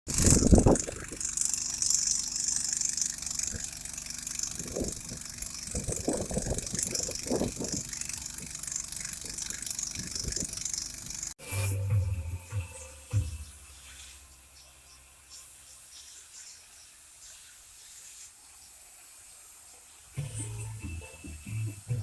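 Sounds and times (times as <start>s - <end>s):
engine idling: 0.1s - 15.3s
knocks and rattles: 3.4s - 11.3s
steady hiss: 12.7s - 22.0s.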